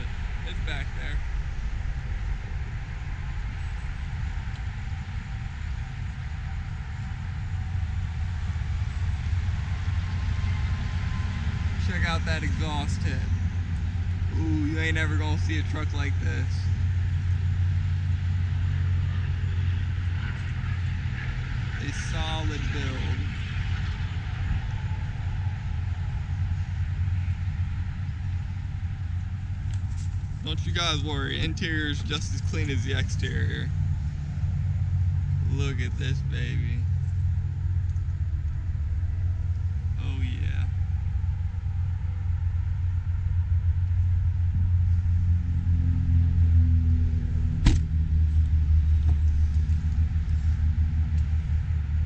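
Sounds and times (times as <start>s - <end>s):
diesel truck engine idling: 0.0s - 52.0s
sharp knock: 47.6s - 47.9s.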